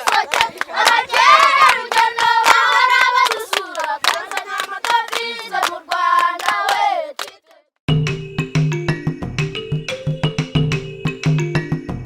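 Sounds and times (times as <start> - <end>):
steady hand clapping: 0.0 - 7.5
group of voices singing: 0.0 - 7.6.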